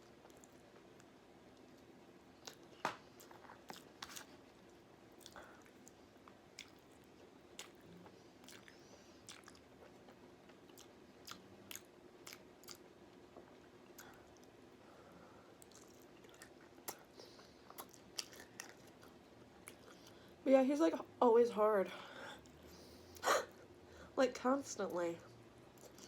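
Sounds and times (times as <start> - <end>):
faint steady hum: 0.0 - 26.0
person chewing with wet mouth clicks: 5.2 - 7.8, 8.4 - 12.8, 15.6 - 20.2.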